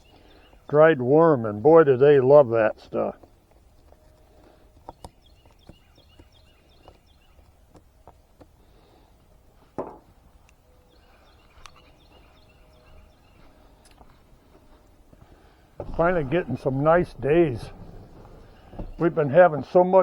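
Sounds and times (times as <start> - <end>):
loud thump: 15.8 - 19.2.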